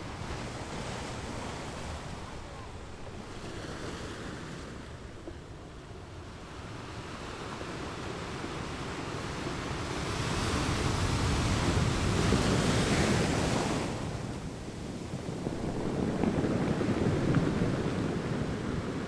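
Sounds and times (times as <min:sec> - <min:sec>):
ocean waves breaking on rocks: 0:00.0 - 0:19.0.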